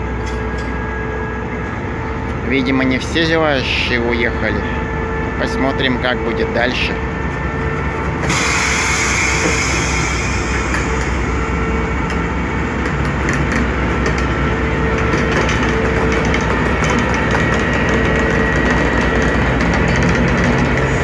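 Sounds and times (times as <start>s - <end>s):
train wheels rumbling on rails: 0.0s - 21.0s
rail clicks: 0.1s - 0.8s, 5.4s - 21.0s.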